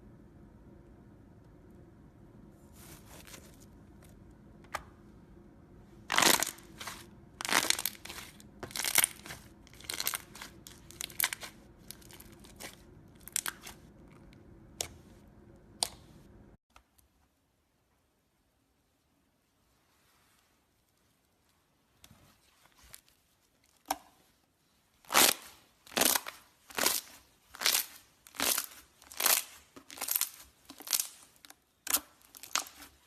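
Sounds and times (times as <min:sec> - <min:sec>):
slime crackling and popping: 0:06.1 - 0:13.8, 0:25.1 - 0:33.0.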